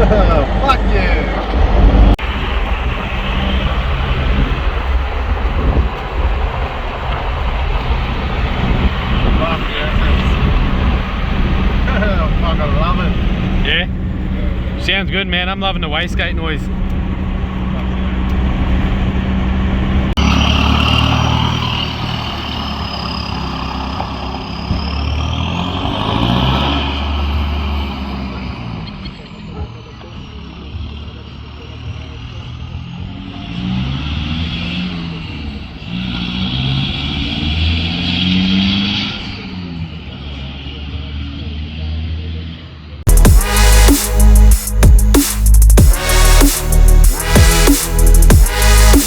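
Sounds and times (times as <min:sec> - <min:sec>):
diesel engine droning: 0:00.0 - 0:49.0
high turbo whistle: 0:43.1 - 0:49.0.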